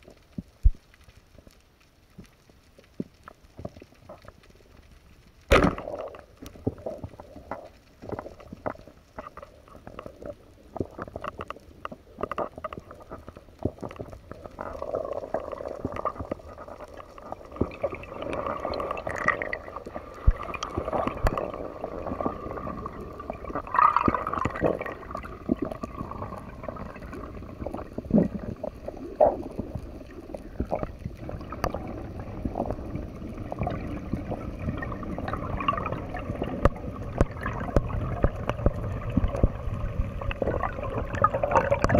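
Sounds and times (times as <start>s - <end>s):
faint steady hum: 0.0s - 41.9s
underwater clicks and knocks: 5.5s - 41.9s
gurgling rush of water: 12.1s - 41.9s.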